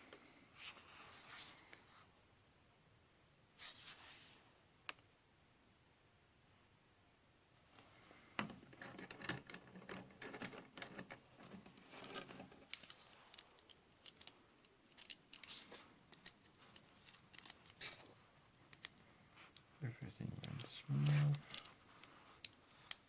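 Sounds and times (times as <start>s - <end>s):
chainsaw parts clicking and rattling: 8.6s - 18.0s.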